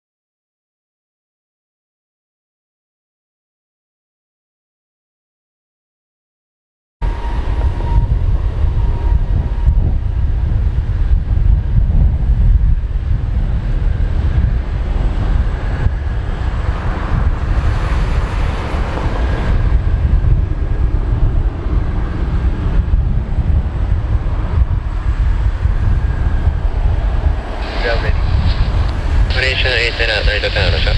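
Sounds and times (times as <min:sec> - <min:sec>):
jet engines rumbling: 0:07.0 - 0:30.9.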